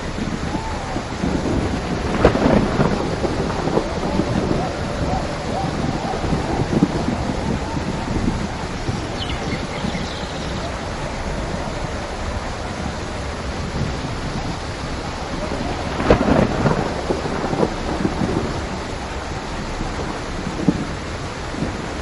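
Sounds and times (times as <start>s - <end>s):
heavy rain: 0.0s - 22.0s
thunder clap rumbling: 0.0s - 22.0s.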